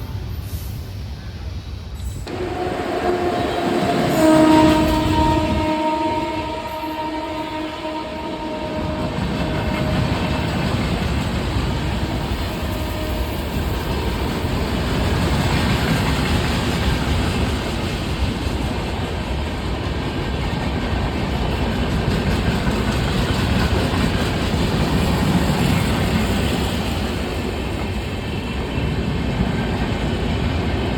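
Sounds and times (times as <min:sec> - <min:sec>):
train wheels rumbling on rails: 0:00.0 - 0:30.9
train horn: 0:02.3 - 0:16.3.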